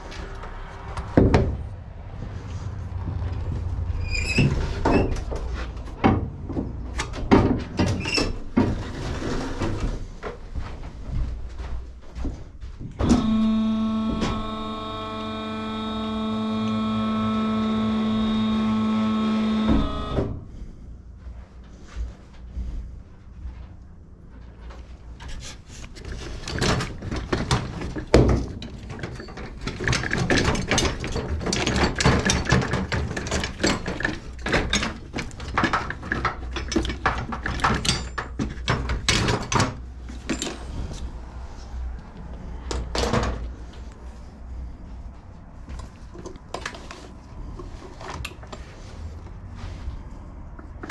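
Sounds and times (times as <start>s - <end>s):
pitched mechanical hum: 0.0s - 50.9s
clatter of parts and tools: 24.3s - 41.1s, 45.7s - 49.2s.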